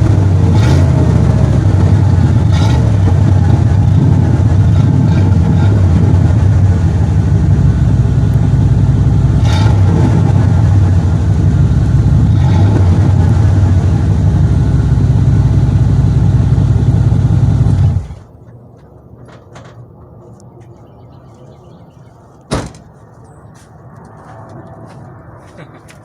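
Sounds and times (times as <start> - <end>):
loud truck exhaust running: 0.0 - 18.3.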